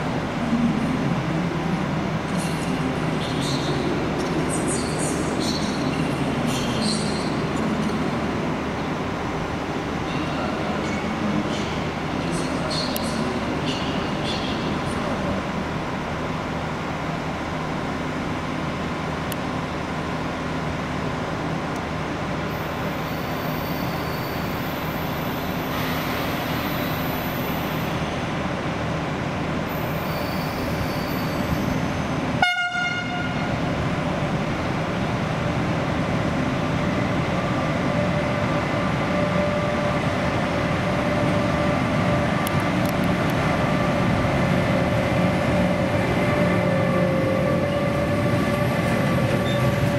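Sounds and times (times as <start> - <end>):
locomotive rumbling: 0.0 - 49.9
short train horn toot: 32.4 - 33.5.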